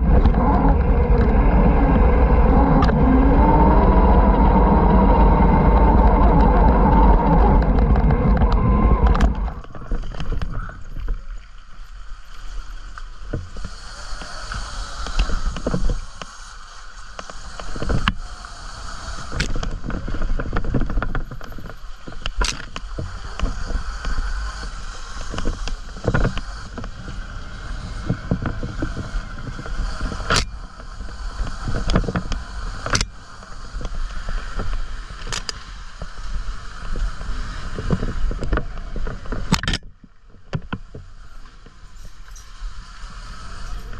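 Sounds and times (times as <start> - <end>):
off-road bike engine: 0.0 - 43.9.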